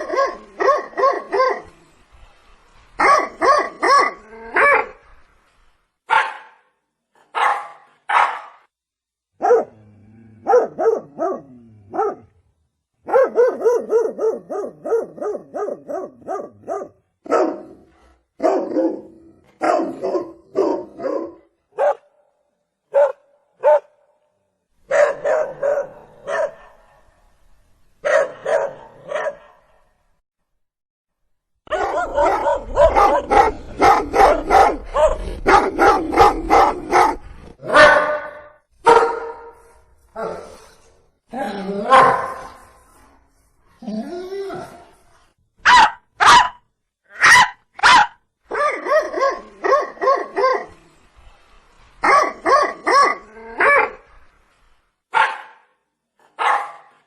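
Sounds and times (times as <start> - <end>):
dog barking: 0.0 - 1.7, 3.0 - 5.0, 6.1 - 8.7, 9.4 - 9.8, 10.4 - 12.3, 13.0 - 17.8, 18.4 - 22.1, 22.9 - 24.0, 24.9 - 27.1, 28.0 - 29.7, 31.7 - 39.6, 41.9 - 42.6, 45.6 - 50.7, 52.0 - 54.0, 55.1 - 55.7, 56.3 - 57.0.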